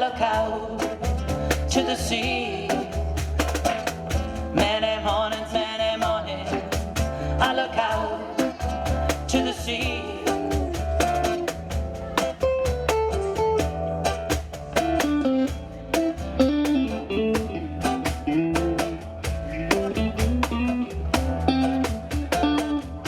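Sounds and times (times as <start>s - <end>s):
bass: 0.0s - 23.0s
steady percussion: 0.0s - 23.0s
strummed guitar: 0.0s - 23.0s
lead guitar melody: 14.8s - 23.0s.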